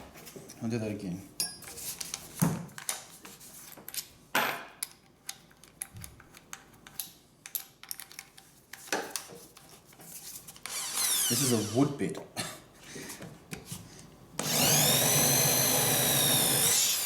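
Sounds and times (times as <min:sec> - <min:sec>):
small tools clicking and tapping: 0:04.8 - 0:10.8.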